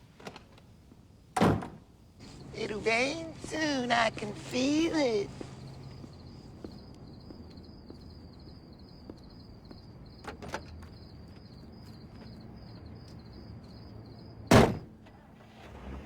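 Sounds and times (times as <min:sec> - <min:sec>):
door slamming shut: 0:01.4 - 0:01.8, 0:14.5 - 0:15.2.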